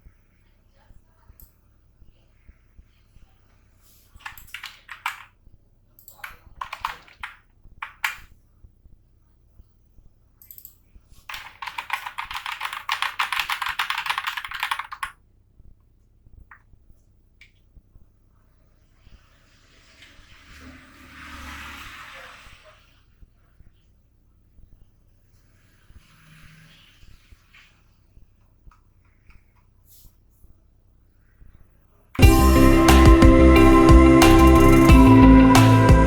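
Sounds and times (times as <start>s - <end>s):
computer keyboard typing: 4.2s - 5.3s, 6.0s - 8.3s, 11.3s - 15.2s.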